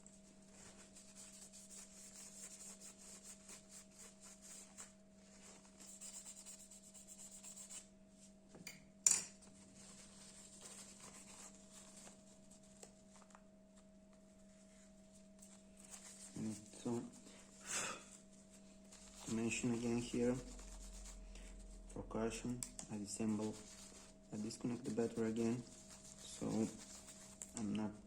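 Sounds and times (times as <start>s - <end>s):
faint electrical hum: 0.0s - 28.0s
rubbing strokes: 0.5s - 7.9s, 14.6s - 27.6s.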